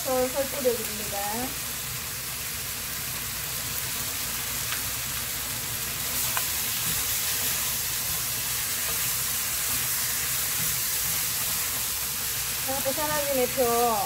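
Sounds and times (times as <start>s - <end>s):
food sizzling in a wok: 0.0s - 14.0s
wooden spatula stirring: 6.0s - 12.7s.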